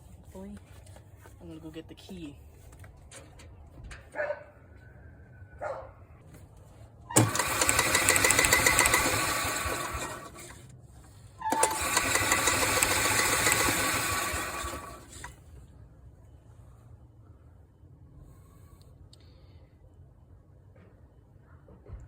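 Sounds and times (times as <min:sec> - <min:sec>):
engine cranking without firing: 0:07.1 - 0:10.7, 0:11.4 - 0:15.4.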